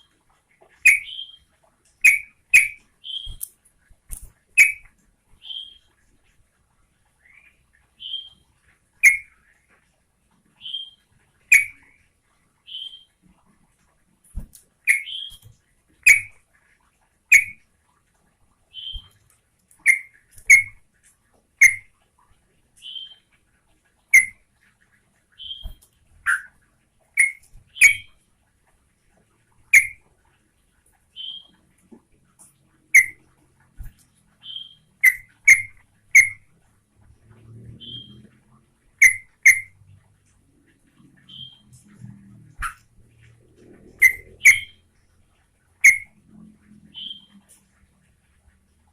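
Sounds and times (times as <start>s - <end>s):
soft high whistled bird notes: 0.8s - 3.4s, 9.0s - 9.4s, 18.8s - 19.1s, 34.4s - 36.4s, 37.8s - 38.2s, 41.3s - 41.7s, 46.9s - 47.4s.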